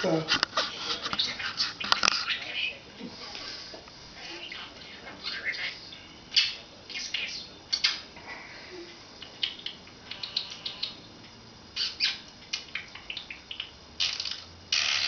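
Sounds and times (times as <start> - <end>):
budgerigar chirping: 11.8 - 14.2.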